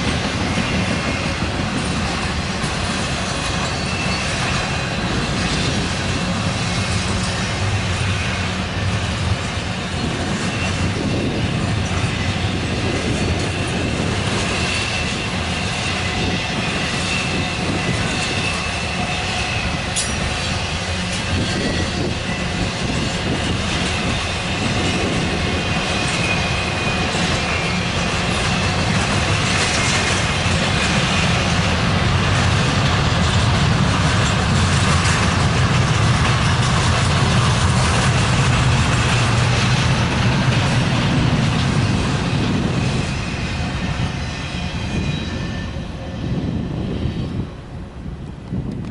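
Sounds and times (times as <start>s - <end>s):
faint high wheel squeal: 3.2s - 5.8s, 6.6s - 30.3s, 41.2s - 47.5s.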